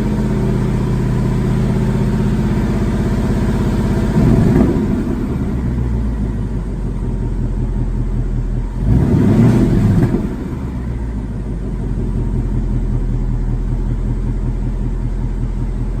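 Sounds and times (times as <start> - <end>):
car engine idling with rumble: 0.0 - 16.0
engine revving: 1.3 - 6.1, 8.7 - 11.0.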